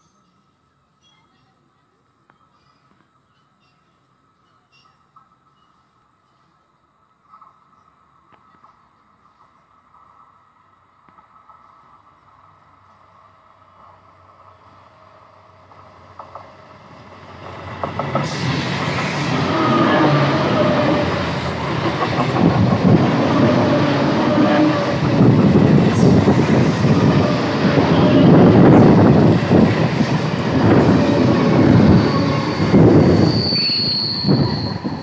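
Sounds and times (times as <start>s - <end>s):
suburban train passing: 0.0s - 35.0s
wheels clattering on rails: 15.7s - 33.5s.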